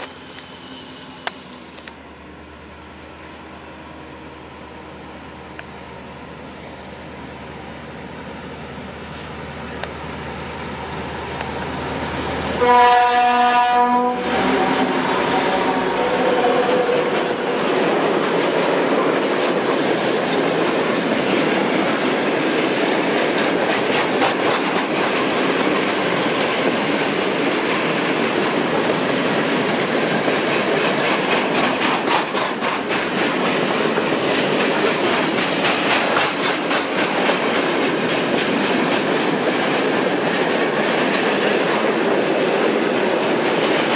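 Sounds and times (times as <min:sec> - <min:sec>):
freight train rumbling past: 0:00.0 - 0:43.9
locomotive horn: 0:12.6 - 0:17.6
wheels clattering over rail joints: 0:17.0 - 0:43.9.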